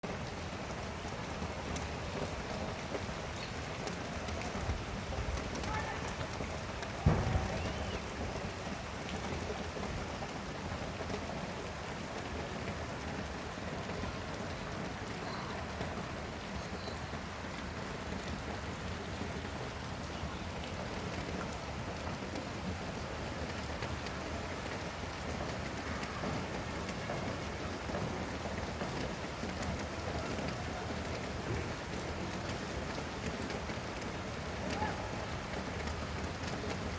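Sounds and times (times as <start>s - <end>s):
rain pattering: 0.0s - 36.9s
loud thump: 7.0s - 7.9s.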